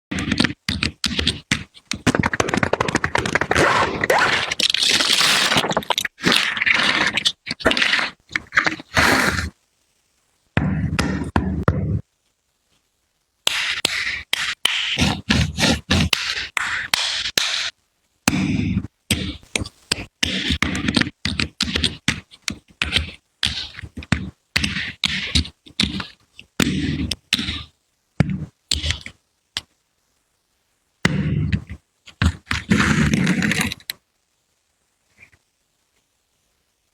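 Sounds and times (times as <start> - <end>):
plastic bricks clacking and scraping: 0.2 - 9.5.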